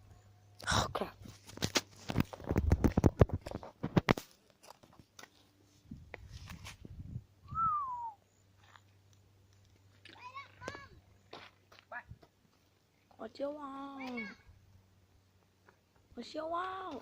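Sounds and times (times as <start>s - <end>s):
soft rustling: 1.2s - 7.0s
short falling whistle-like call: 7.5s - 8.2s.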